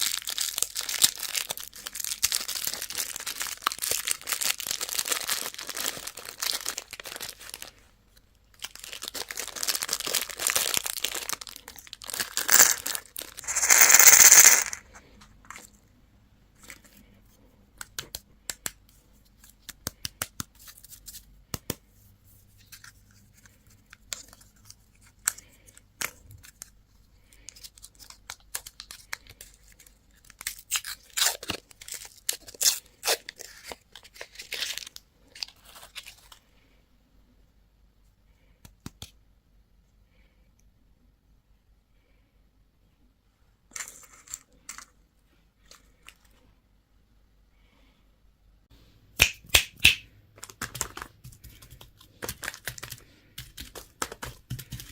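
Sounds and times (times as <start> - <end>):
plastic wrappers crinkling: 0.0 - 7.8, 8.5 - 15.6, 27.4 - 36.4, 50.4 - 54.9
wrapper tearing: 0.0 - 7.8, 8.6 - 14.9, 27.5 - 36.4.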